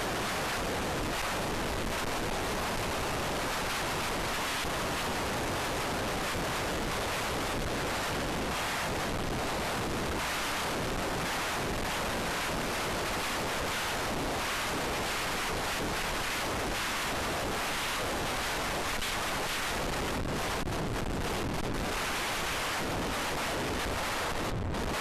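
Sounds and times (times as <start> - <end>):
wind noise on microphone: 0.0 - 25.0.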